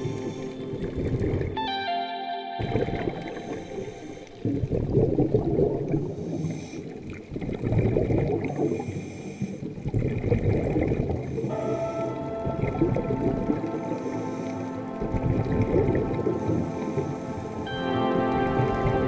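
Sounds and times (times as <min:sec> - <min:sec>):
water surging and gurgling: 0:00.0 - 0:02.0, 0:02.6 - 0:19.0
background music: 0:00.0 - 0:04.4, 0:11.5 - 0:19.0.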